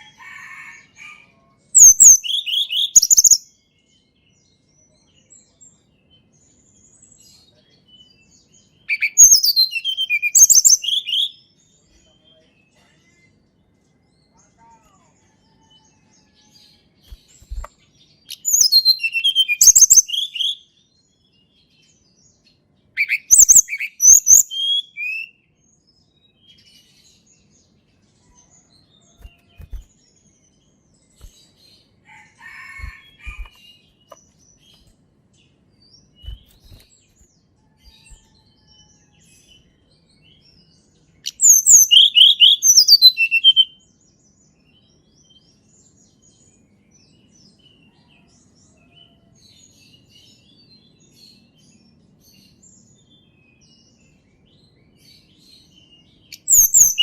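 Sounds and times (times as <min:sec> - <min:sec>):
songbird chirping and whistling: 0:01.8 - 0:03.4, 0:08.9 - 0:11.4, 0:17.1 - 0:17.7, 0:18.3 - 0:20.7, 0:23.0 - 0:25.3, 0:29.2 - 0:29.9, 0:32.5 - 0:34.9, 0:37.8 - 0:39.0, 0:41.2 - 0:43.8, 0:56.3 - 0:57.0.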